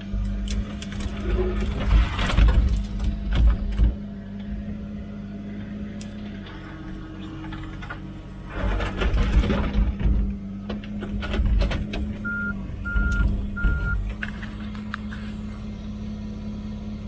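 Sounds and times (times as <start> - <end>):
excavator diesel engine working: 0.0 - 17.0
travel alarm beeps: 12.2 - 14.0.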